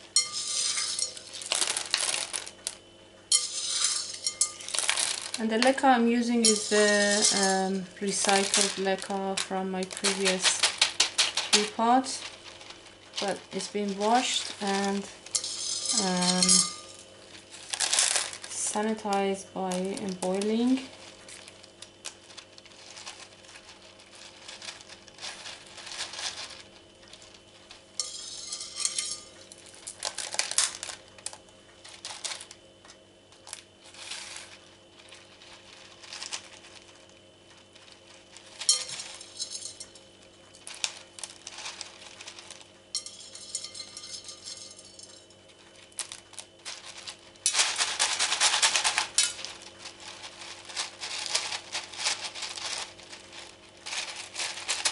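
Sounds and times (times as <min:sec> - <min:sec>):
clay pebbles clinking and rattling: 0:00.0 - 0:32.6, 0:33.3 - 0:54.9.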